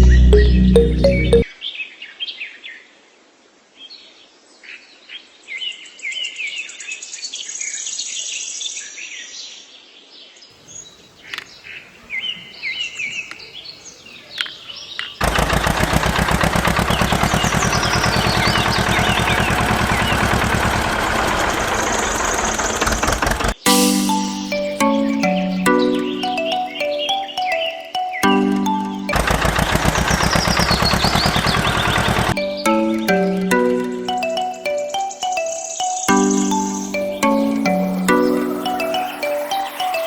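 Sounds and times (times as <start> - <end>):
fast mechanical rattle: 15.2 - 23.6, 29.3 - 32.4
birds chirping: 16.9 - 20.6, 23.7 - 40.0.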